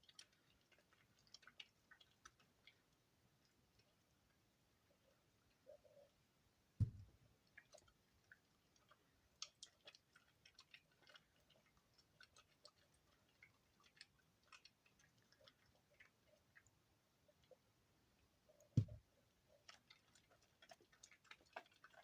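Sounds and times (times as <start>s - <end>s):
dull thump: 6.8s - 7.1s, 18.8s - 19.0s.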